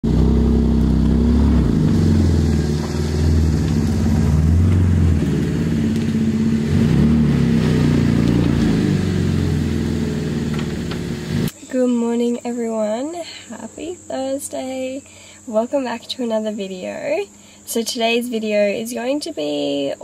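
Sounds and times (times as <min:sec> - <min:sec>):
car engine running at low revs: 0:00.0 - 0:11.6.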